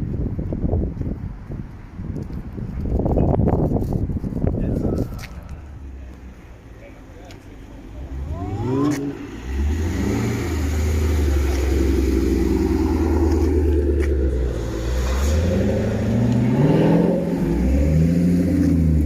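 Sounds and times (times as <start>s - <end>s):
car engine starting and revving: 7.9s - 19.0s.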